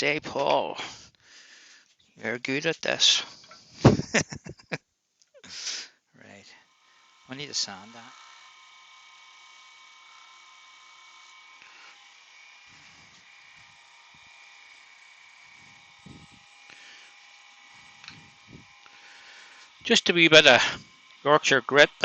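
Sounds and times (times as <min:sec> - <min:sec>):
wood lathe motor whine: 0:06.3 - 0:22.0.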